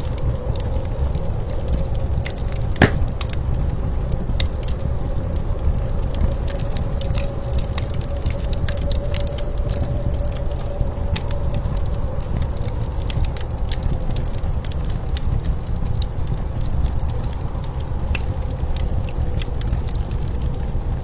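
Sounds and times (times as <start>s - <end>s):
wood fire crackling: 2.3s - 3.4s.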